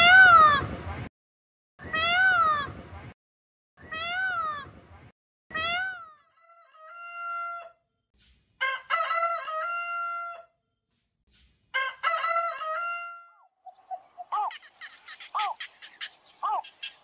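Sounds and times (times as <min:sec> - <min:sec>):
rooster crowing: 0:08.6 - 0:10.5, 0:11.8 - 0:13.4.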